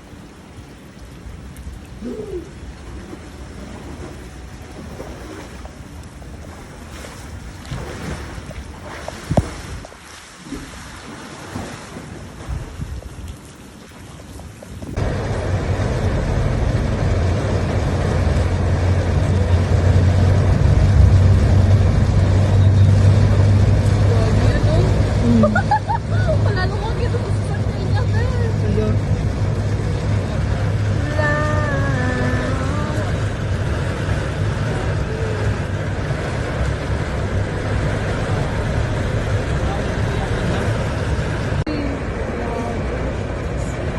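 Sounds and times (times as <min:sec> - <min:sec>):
traffic in heavy rain: 0:14.9 - 0:43.9
motor vehicle running: 0:15.0 - 0:43.9.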